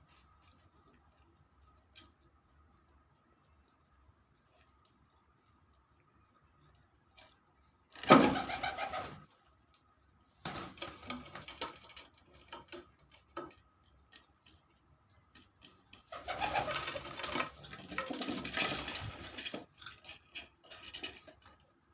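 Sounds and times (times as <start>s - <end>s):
pigeons cooing: 8.2s - 9.2s, 16.1s - 17.2s.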